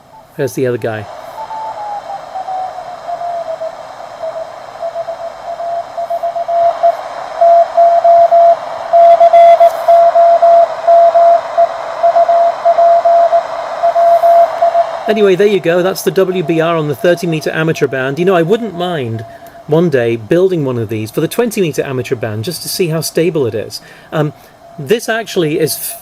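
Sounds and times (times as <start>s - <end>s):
radio band hiss: 0.0s - 26.0s
morse code tone: 1.2s - 20.3s.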